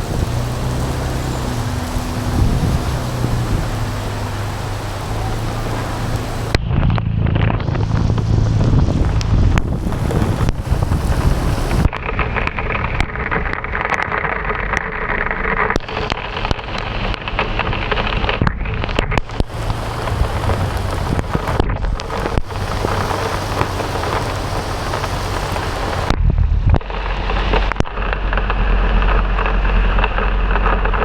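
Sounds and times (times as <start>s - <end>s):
heavy rain hiss: 0.0s - 6.6s, 7.6s - 12.0s, 15.8s - 26.2s
low rumble of wind and vehicles: 0.0s - 31.0s
raindrops tapping on camera: 0.0s - 31.0s.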